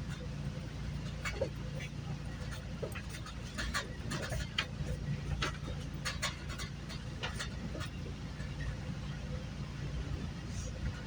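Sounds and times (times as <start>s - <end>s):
train rumbling: 0.0s - 11.0s
clicks and rattles: 1.0s - 8.7s.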